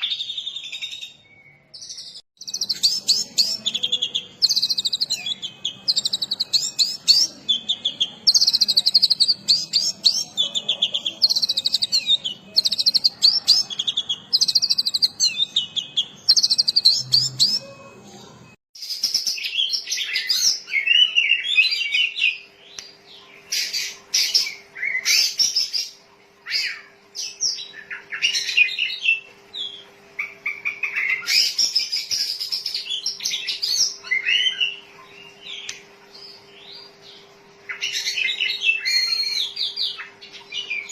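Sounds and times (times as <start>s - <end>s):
bird singing whistled phrases: 0.0s - 10.3s, 11.0s - 17.9s
faint steady hum: 0.4s - 40.9s.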